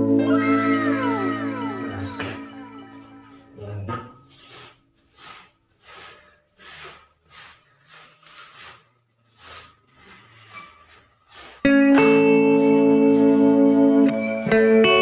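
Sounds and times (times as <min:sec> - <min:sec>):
faint rasping hand rubbing: 0:04.2 - 0:14.1.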